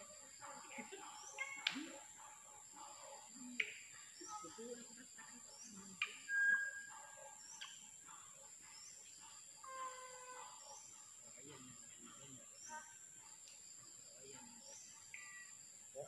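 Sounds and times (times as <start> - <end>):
birds chirping and clicking: 0.0 - 15.5
insects droning: 0.0 - 16.0
held bird whistle: 6.0 - 7.1.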